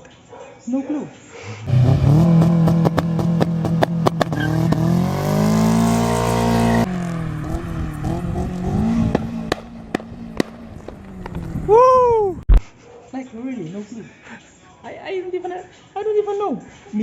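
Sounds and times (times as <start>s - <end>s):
car engine running under load: 1.6s - 11.8s.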